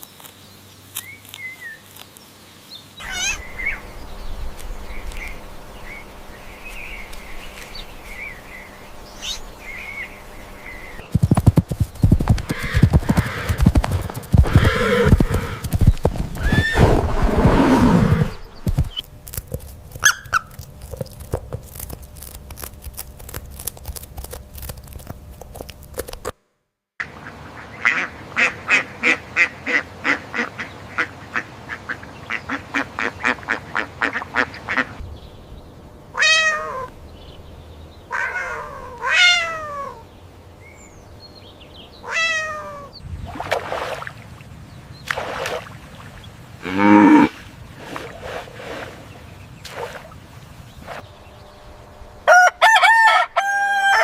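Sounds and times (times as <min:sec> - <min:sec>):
cat meowing: 0:03.0 - 0:03.8, 0:36.2 - 0:36.9, 0:42.0 - 0:42.9
duck quacking: 0:27.0 - 0:35.0.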